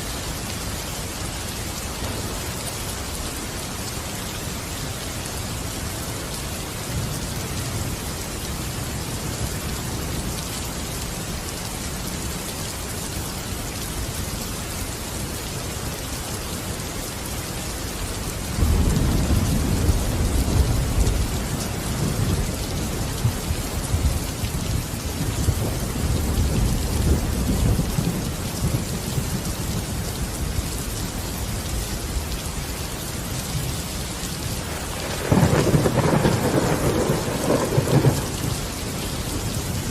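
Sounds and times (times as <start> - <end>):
heavy rain hissing: 0.0 - 39.9
thunder rumbling: 34.6 - 39.9.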